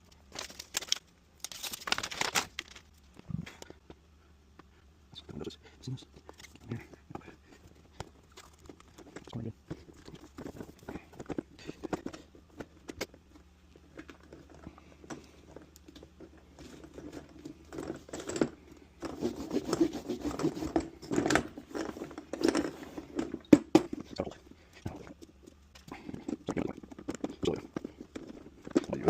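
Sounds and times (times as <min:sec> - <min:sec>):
hands rubbing and scraping plastic: 0:06.2 - 0:23.4.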